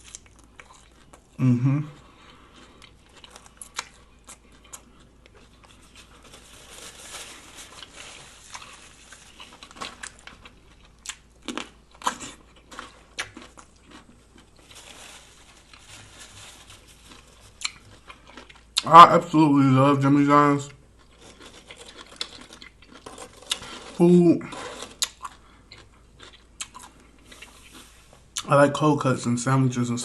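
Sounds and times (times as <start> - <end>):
chewing and biting sandwich: 2.0 - 18.8, 20.9 - 28.4
wrapper crinkles: 5.5 - 10.5, 14.6 - 18.0.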